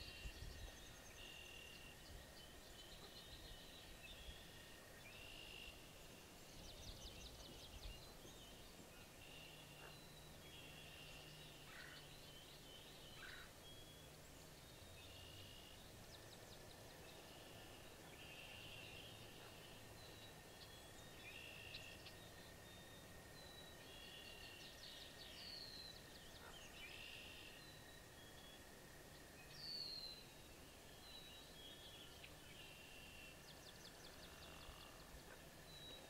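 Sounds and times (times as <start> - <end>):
small birds calling: 6.9 - 28.4.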